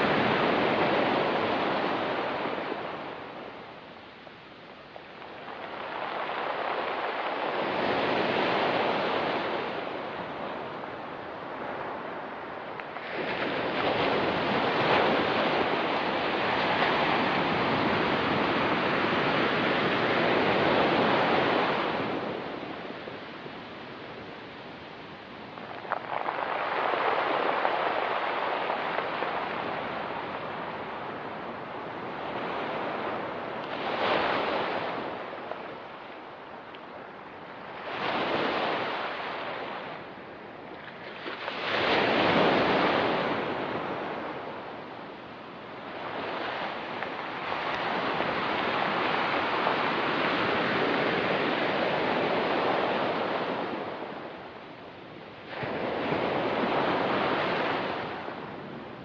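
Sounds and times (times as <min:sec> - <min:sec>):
ocean waves on rocky beach: 0:00.0 - 0:59.0.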